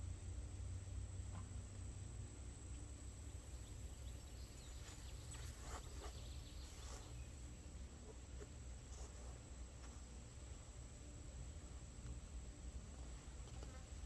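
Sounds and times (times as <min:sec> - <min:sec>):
insect drone: 0:00.0 - 0:07.9
faint bird calls: 0:02.7 - 0:07.4.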